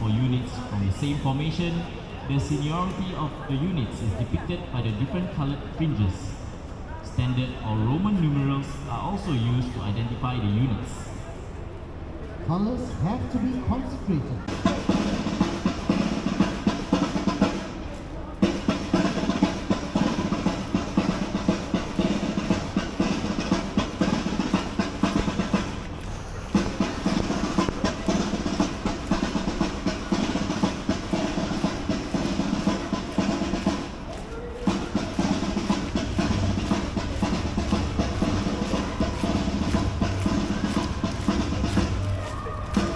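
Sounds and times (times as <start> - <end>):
snare drum rolls: 14.4 - 42.9
bass drum: 18.4 - 34.0, 34.6 - 42.9.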